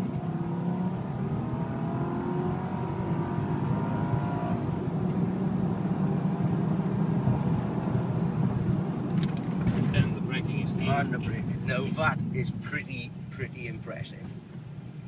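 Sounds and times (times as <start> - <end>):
car engine accelerating: 0.0 - 12.8.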